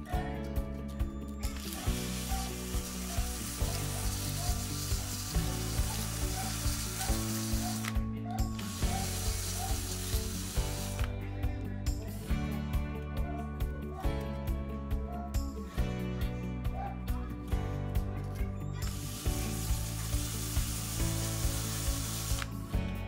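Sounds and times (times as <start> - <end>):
background music with beat: 0.0 - 23.0
drill grinding against sandpaper: 1.4 - 11.1, 18.8 - 22.7.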